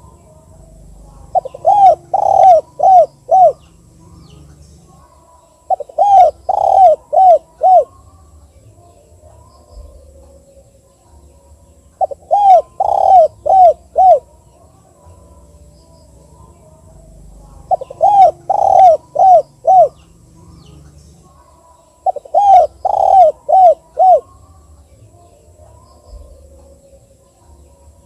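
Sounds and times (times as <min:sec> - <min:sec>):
dove cooing: 0:00.0 - 0:08.1, 0:12.0 - 0:15.6, 0:16.4 - 0:24.6.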